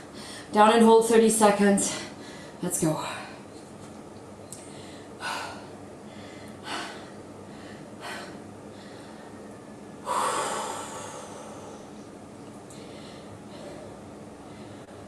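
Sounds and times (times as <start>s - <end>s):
woman breathing hard: 0.0s - 0.5s, 1.9s - 3.4s, 4.6s - 12.1s, 12.7s - 15.0s.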